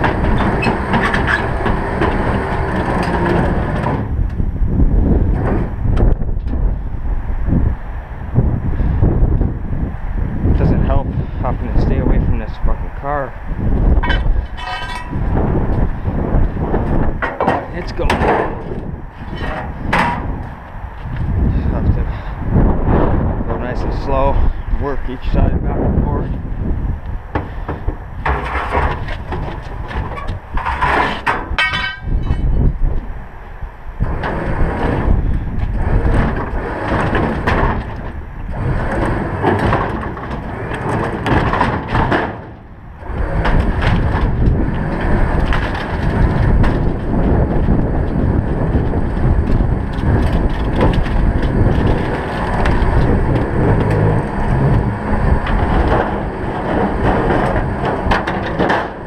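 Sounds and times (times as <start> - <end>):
metal scraping on wood: 0.0 - 4.2, 13.9 - 22.3, 27.3 - 32.8, 34.0 - 59.0
knocks and creaks: 0.0 - 4.5, 5.1 - 6.8, 10.4 - 33.1, 34.0 - 59.0
wind buffeting microphone: 0.0 - 59.0.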